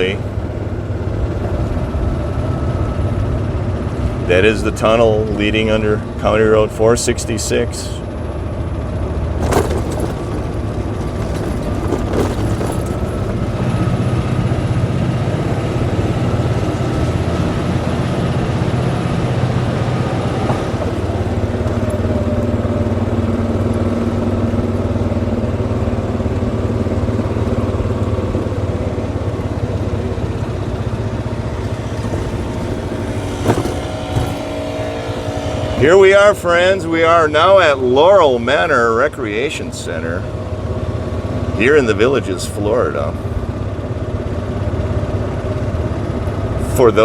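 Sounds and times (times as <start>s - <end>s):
golf cart motor humming: 0.0s - 47.0s
tyre and road noise: 0.0s - 47.0s
light rattles: 9.4s - 13.8s, 26.3s - 35.8s.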